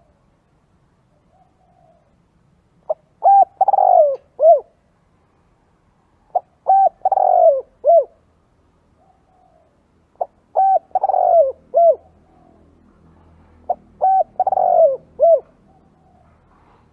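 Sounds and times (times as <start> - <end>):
dove cooing: 1.1 - 2.2, 2.9 - 4.8, 6.3 - 8.2, 9.0 - 12.9, 13.6 - 16.9.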